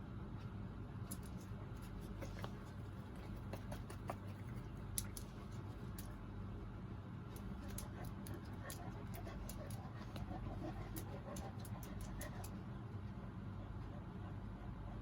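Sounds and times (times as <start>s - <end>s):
low hum: 0.0s - 15.0s
dog claws scratching floor: 1.1s - 6.1s, 7.3s - 12.6s.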